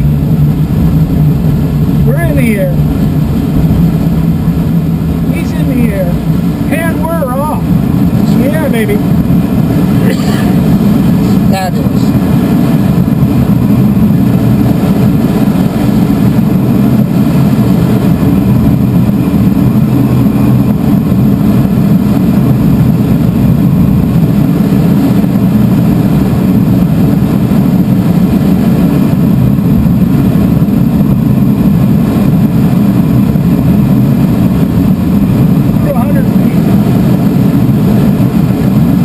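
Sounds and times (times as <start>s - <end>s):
low engine drone: 0.0s - 39.0s
rush of air in cockpit: 0.0s - 39.0s.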